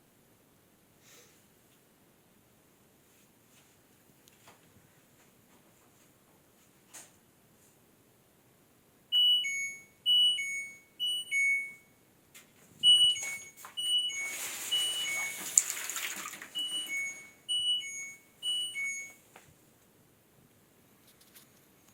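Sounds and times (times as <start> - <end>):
washing machine beeping: 9.1 - 12.0, 12.8 - 19.3.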